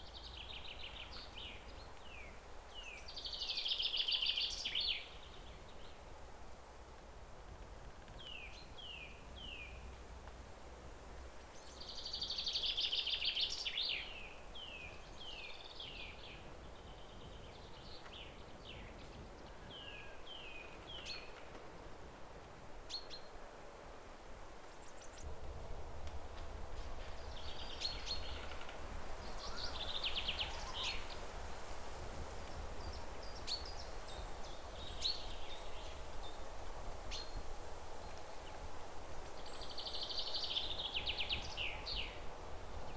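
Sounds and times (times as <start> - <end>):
songbirds singing: 0.0 - 6.0, 24.8 - 31.5, 32.2 - 38.6, 39.2 - 42.9
outdoor background hiss: 0.0 - 42.9.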